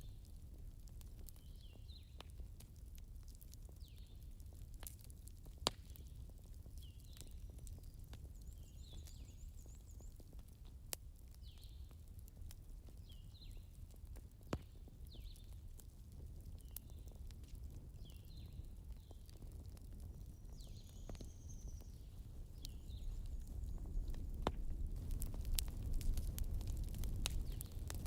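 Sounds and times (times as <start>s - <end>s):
wood fire crackling: 0.0s - 28.0s
sharp fire pops: 3.0s - 10.0s, 12.9s - 15.4s, 22.6s - 28.0s.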